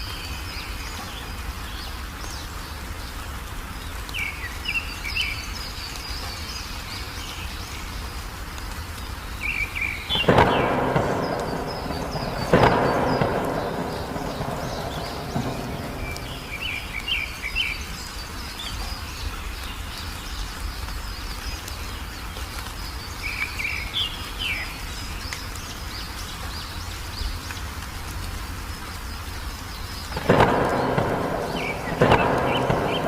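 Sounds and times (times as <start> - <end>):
songbird twittering chirps: 0.0 - 27.7, 28.7 - 33.0
thunder crack: 10.1 - 17.7, 30.1 - 33.0
low rumble: 10.2 - 17.4.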